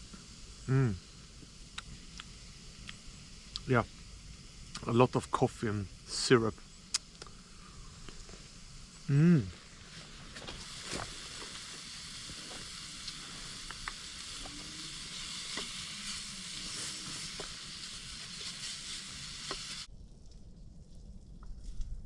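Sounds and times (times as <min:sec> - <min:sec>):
bacon sizzling in a frying pan: 0:00.0 - 0:19.9
low vocal sound: 0:00.6 - 0:01.0, 0:09.1 - 0:09.6
small pops: 0:06.9 - 0:07.4, 0:10.3 - 0:16.0.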